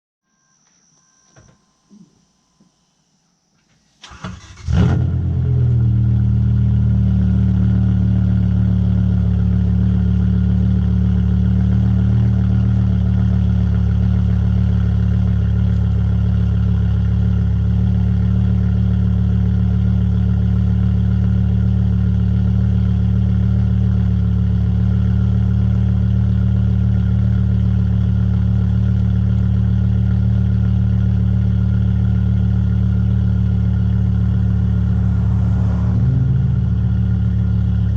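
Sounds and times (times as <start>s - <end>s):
car engine starting and idling: 4.0s - 37.9s.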